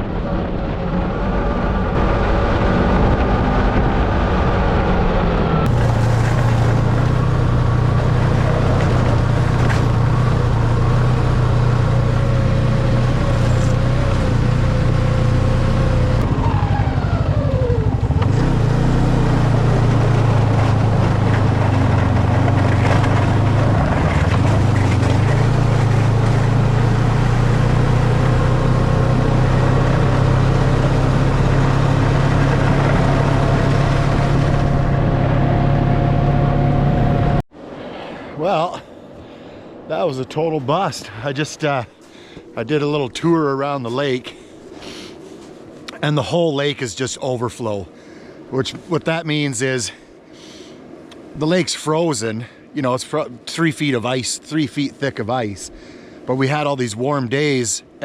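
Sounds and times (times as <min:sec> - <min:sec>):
snowmobile engine running: 0:00.3 - 0:35.9.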